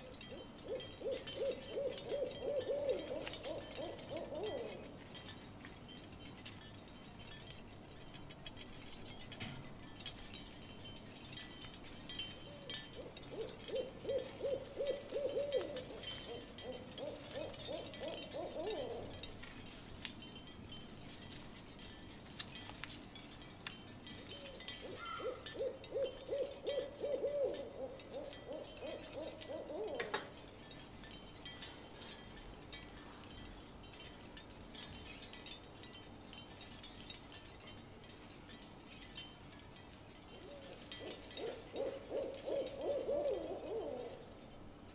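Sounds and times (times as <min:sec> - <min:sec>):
owl-like hooting: 0:00.3 - 0:04.8, 0:12.6 - 0:19.1, 0:24.8 - 0:30.3, 0:40.5 - 0:44.2.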